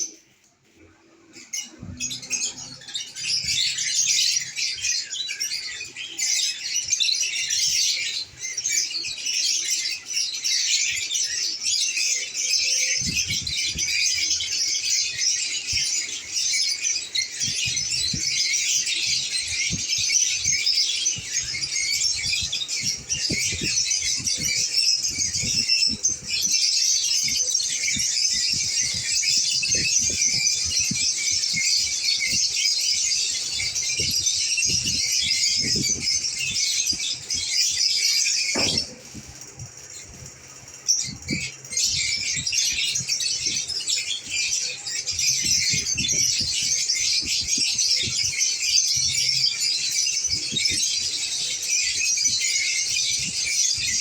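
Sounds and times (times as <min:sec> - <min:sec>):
birds chattering and chirping: 0:00.0 - 0:54.0
low knocks: 0:38.6 - 0:39.2.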